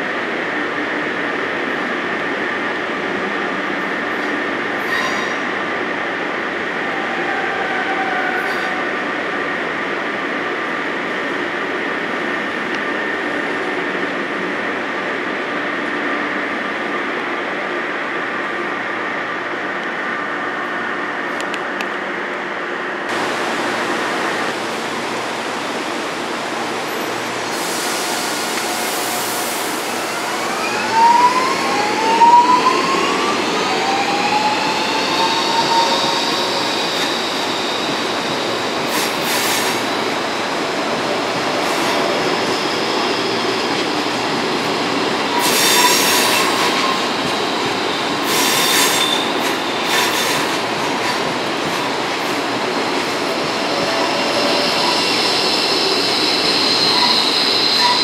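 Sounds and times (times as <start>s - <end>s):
train wheels rumbling on rail: 21.2s - 58.0s.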